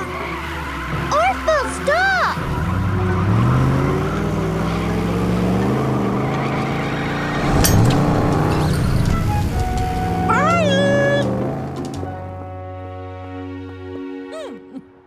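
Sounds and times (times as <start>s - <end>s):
cartoon truck engines revving: 0.0s - 12.6s
sharp metallic clank: 7.4s - 9.1s.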